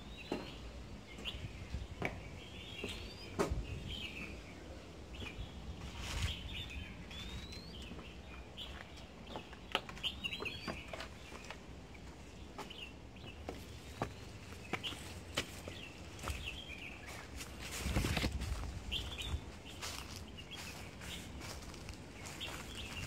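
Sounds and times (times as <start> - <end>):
birds calling: 0.0 - 23.0
footsteps and knocks: 0.2 - 3.7, 7.2 - 16.8.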